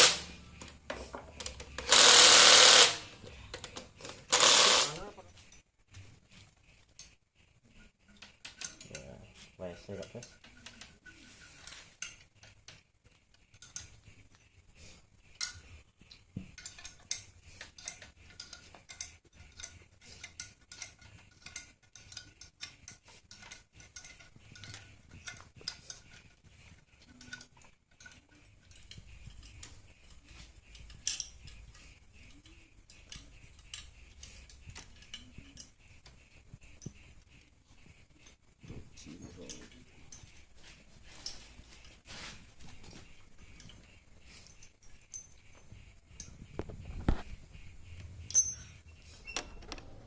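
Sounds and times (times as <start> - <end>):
metallic clinks of hand tools: 27.0 - 35.8, 48.3 - 49.4.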